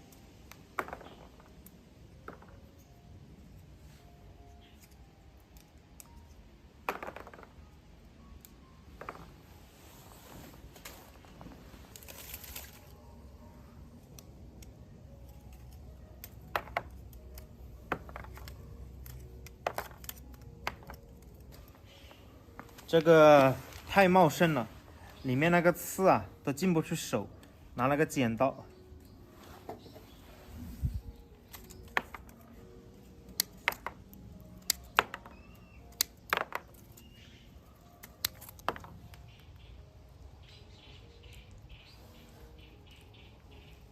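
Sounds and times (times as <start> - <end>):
scissors snipping stems: 14.0 - 23.9, 31.1 - 37.2, 37.8 - 39.2.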